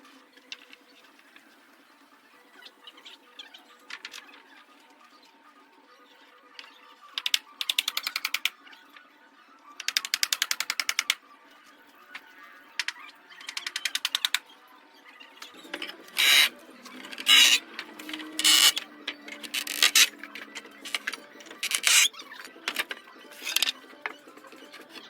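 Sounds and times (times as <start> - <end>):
hand tool rasping strokes: 16.2 - 16.5, 17.1 - 20.1, 20.8 - 22.1.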